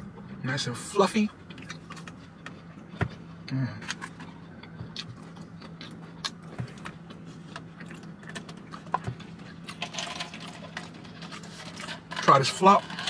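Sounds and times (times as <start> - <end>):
steady low hum: 0.0 - 13.0
chewing and lip smacks: 1.4 - 9.8.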